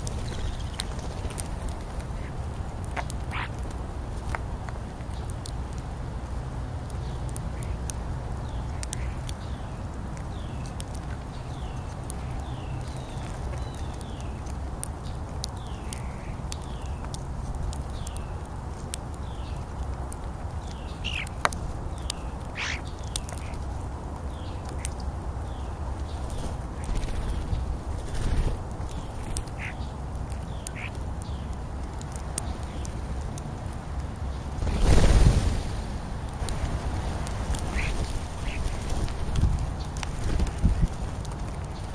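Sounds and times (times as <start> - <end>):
bird chirping: 0.0 - 3.6, 6.9 - 33.0, 36.4 - 41.9
steady low rumble: 0.0 - 41.9
sharp clicks: 6.8 - 35.4.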